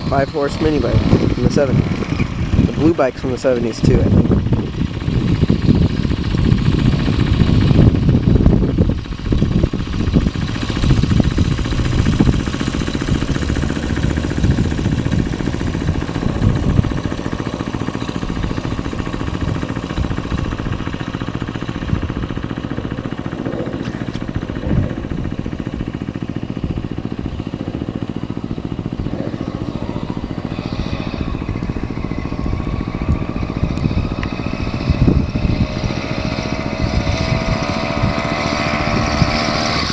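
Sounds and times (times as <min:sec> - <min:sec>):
small motorbike engine running: 0:00.0 - 0:39.9.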